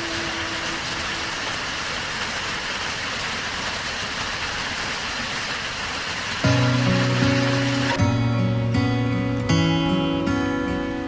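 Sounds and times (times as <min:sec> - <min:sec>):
river water rushing: 0:00.0 - 0:08.0.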